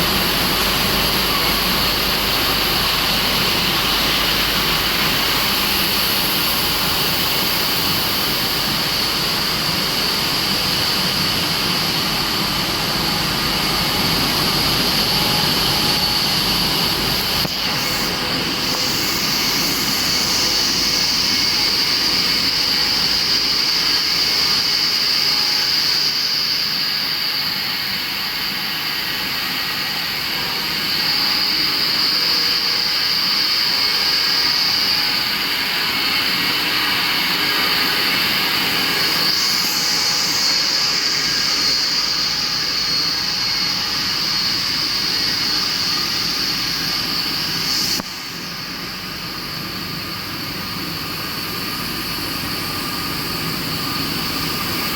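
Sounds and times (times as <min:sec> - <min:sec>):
machinery hissing and whining: 0:00.0 - 0:54.9.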